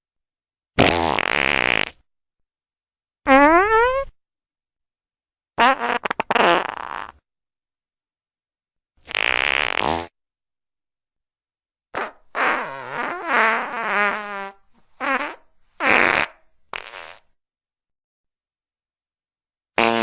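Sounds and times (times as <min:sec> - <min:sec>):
fart sound effects: 0:00.8 - 0:02.1, 0:03.3 - 0:04.2, 0:05.6 - 0:07.2, 0:09.0 - 0:10.2, 0:12.0 - 0:17.3, 0:19.8 - 0:20.0.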